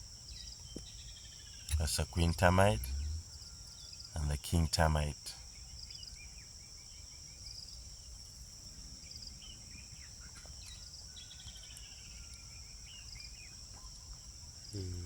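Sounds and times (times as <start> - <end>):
birds chirping: 1.7 - 3.4.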